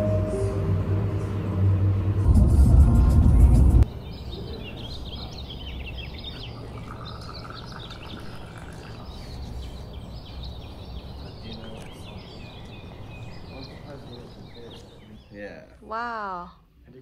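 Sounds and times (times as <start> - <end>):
low steady background hum: 3.8 - 17.0
small birds chirping: 3.8 - 17.0.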